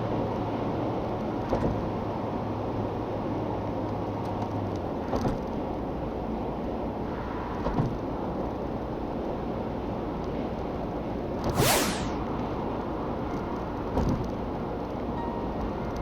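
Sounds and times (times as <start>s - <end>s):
whoosh falling in pitch: 11.5s - 12.3s.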